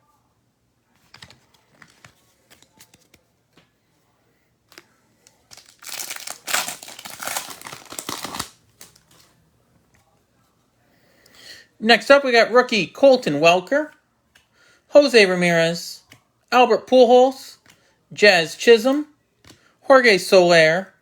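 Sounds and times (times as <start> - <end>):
cards clicking and tapping: 0.9 - 3.8, 13.9 - 14.6, 16.0 - 16.3, 17.6 - 17.9, 19.4 - 19.7
wrapper crinkling as torn open: 4.7 - 9.3.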